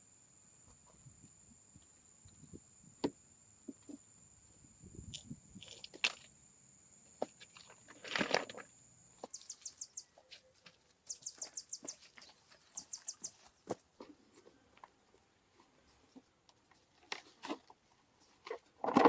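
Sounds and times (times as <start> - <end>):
rustle: 0.0 - 19.0
small bird chirping: 9.2 - 14.5.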